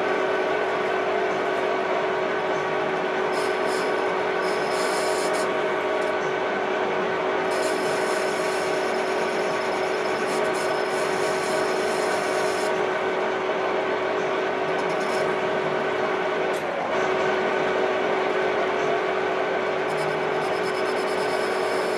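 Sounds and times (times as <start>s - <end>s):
electric power tool humming: 7.5s - 12.8s.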